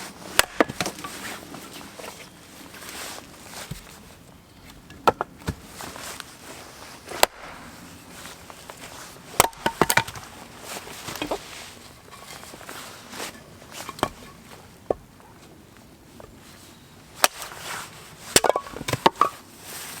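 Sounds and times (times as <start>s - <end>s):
sharp knocks and cracks: 0.3s - 1.2s, 7.1s - 7.7s, 9.4s - 10.3s, 17.2s - 17.5s, 18.3s - 19.4s.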